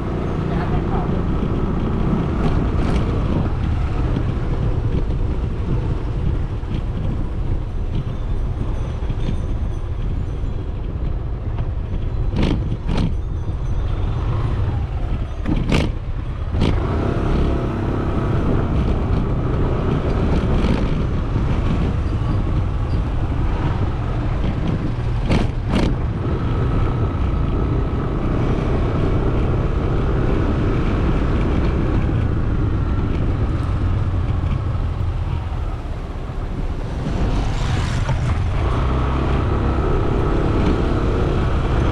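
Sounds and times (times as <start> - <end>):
wind rush: 0.0 - 11.9, 12.5 - 41.9
motorcycle engine running: 14.0 - 41.9.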